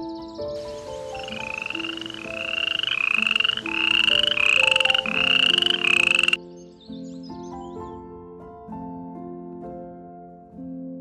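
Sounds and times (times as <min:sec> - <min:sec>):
soft background music: 0:00.0 - 0:11.0
frog croaks: 0:00.9 - 0:06.4.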